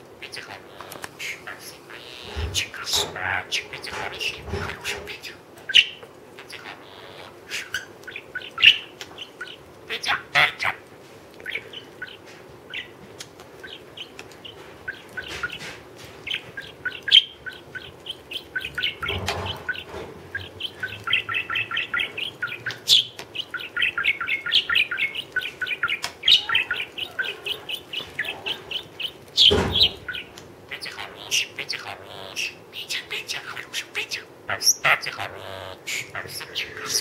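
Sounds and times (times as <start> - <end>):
parrot clicks and chirps: 16.2 - 31.8.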